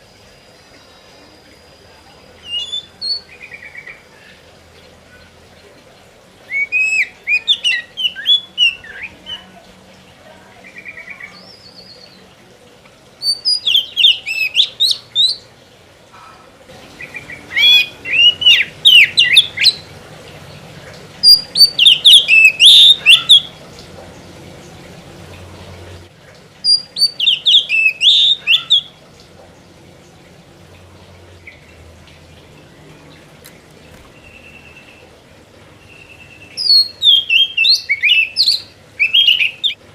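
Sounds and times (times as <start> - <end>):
bird singing whistled phrases: 2.4 - 4.0, 6.5 - 9.4, 13.2 - 15.4, 17.0 - 19.8, 21.2 - 23.5, 26.7 - 28.9, 35.9 - 39.8.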